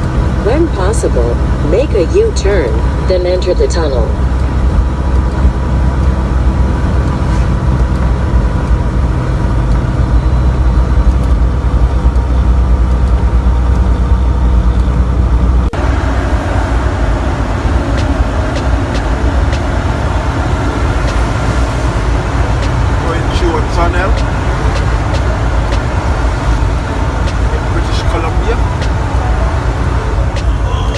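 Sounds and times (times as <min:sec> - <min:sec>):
truck engine droning: 0:15.6 - 0:30.9.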